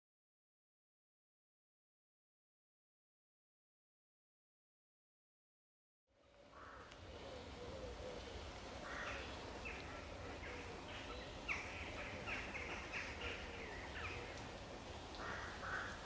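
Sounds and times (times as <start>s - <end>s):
birds calling harsh notes: 6.6s - 14.4s, 15.1s - 16.0s.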